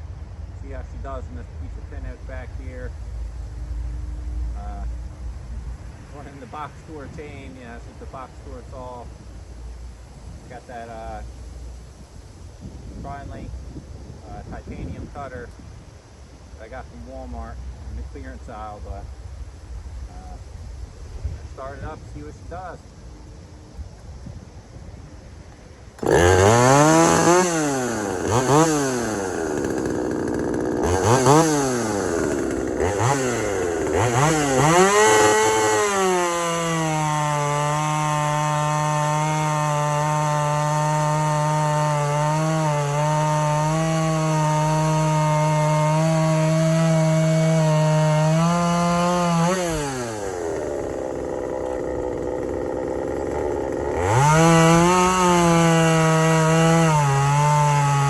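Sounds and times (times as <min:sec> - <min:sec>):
chainsaw revving and cutting wood: 0:06.2 - 0:09.0, 0:26.0 - 0:58.0.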